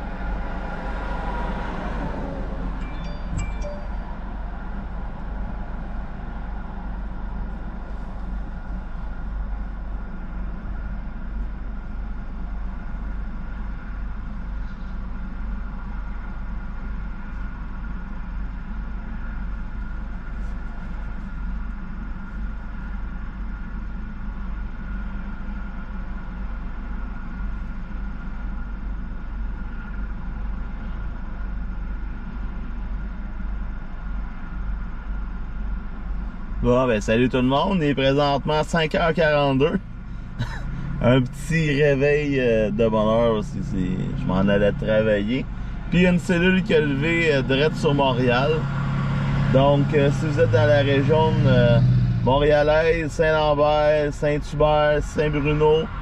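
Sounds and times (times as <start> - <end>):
vehicle engine idling: 0.0 - 56.0
faint high whine: 2.7 - 5.3.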